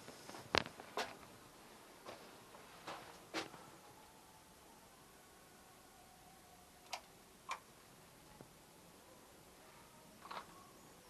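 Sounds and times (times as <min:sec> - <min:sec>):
faint high tone: 0:09.0 - 0:11.0.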